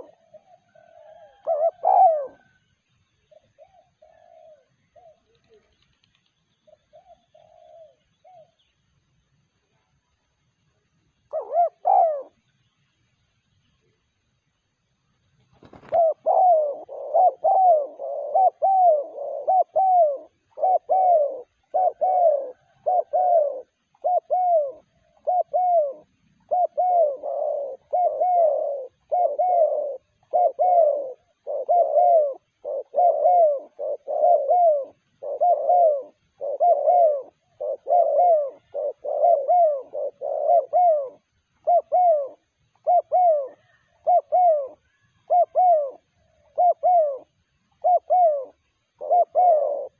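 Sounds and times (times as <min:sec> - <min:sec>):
dove cooing: 0:00.0 - 0:08.8, 0:11.2 - 0:12.5, 0:15.4 - 0:49.9.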